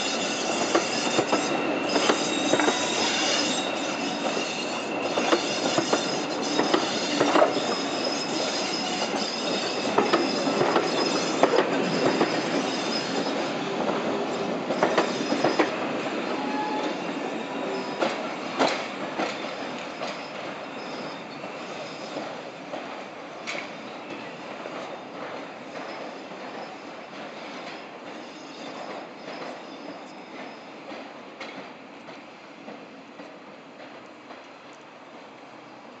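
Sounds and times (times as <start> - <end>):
wheel squeal: 0.0 - 15.8, 16.4 - 22.4, 25.8 - 30.8
diesel engine high whistle: 16.3 - 18.1.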